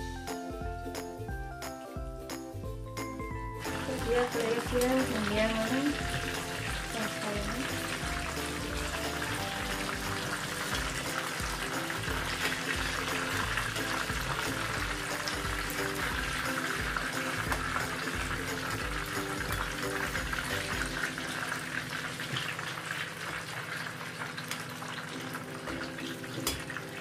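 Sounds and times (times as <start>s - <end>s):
background music with a beat: 0.0s - 21.1s
food sizzling in hot oil: 3.0s - 27.0s.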